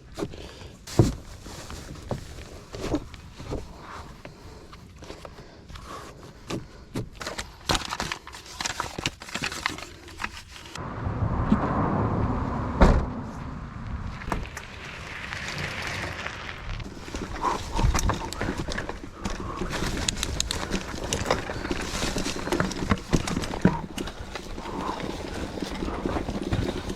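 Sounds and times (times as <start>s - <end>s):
heavy thump: 10.8s - 14.6s
tyre and wind noise rushing: 10.8s - 26.9s
bike chain and frame rattling: 14.5s - 26.9s.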